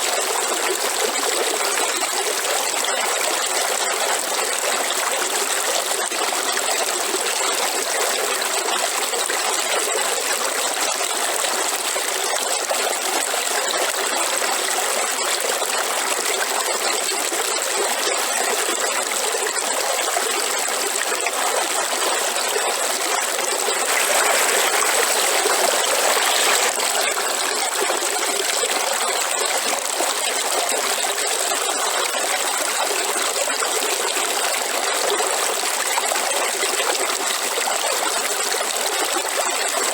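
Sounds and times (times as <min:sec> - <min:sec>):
waterfall rushing: 0:23.8 - 0:26.9.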